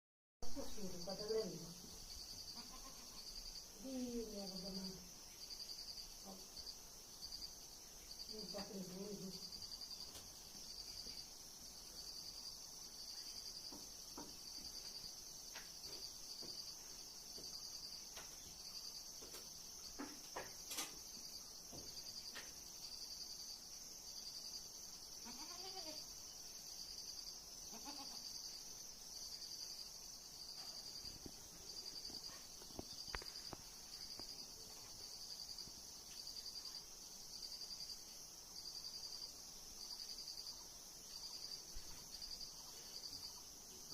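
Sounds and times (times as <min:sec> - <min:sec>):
crickets chirping: 0:00.4 - 0:43.9
goat bleating: 0:02.6 - 0:03.2, 0:25.2 - 0:26.0, 0:27.7 - 0:28.2.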